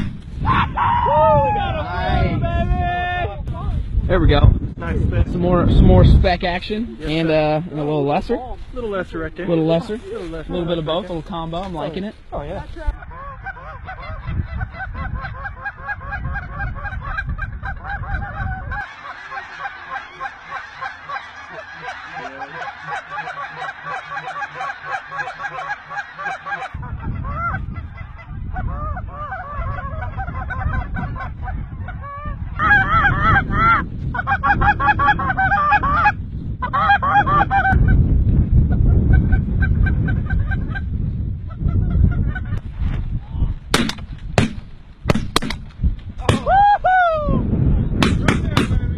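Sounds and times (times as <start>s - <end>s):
wind rumbling on microphone: 0.0s - 48.9s
geese honking: 9.5s - 38.0s.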